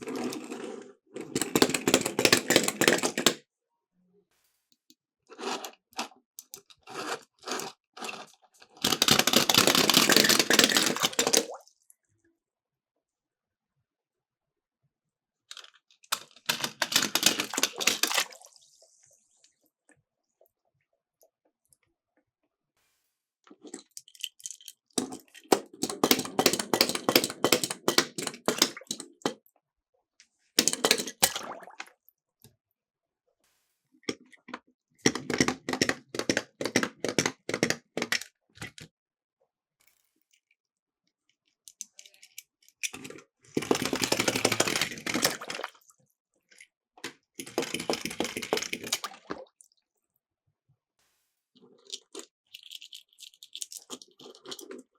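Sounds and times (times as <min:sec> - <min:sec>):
toy cars rattling down plastic slope: 0:00.0 - 0:03.4, 0:05.4 - 0:11.6, 0:15.5 - 0:18.3, 0:23.6 - 0:29.4, 0:30.6 - 0:31.3, 0:35.0 - 0:38.9, 0:41.7 - 0:45.8, 0:47.0 - 0:49.2, 0:51.8 - 0:54.9.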